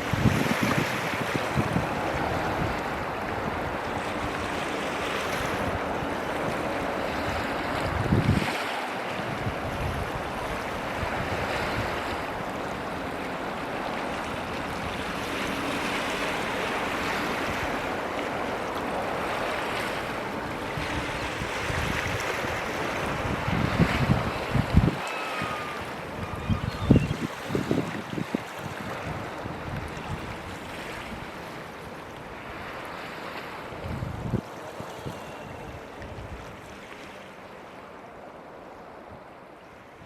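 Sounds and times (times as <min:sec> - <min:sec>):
wind buffeting microphone: 0:00.0 - 0:12.5, 0:20.2 - 0:31.4, 0:33.6 - 0:36.6
surf rushing: 0:00.0 - 0:39.5.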